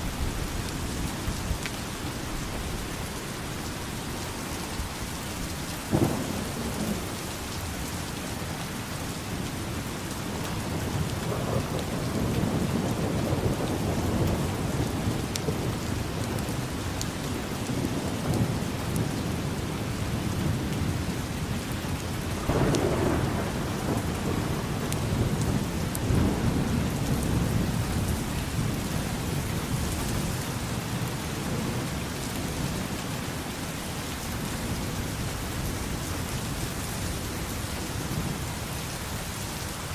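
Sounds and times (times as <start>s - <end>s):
heavy rain: 0.0s - 39.9s
thunder rumbling: 5.7s - 33.0s
thunder crack: 5.9s - 7.6s, 22.4s - 30.4s.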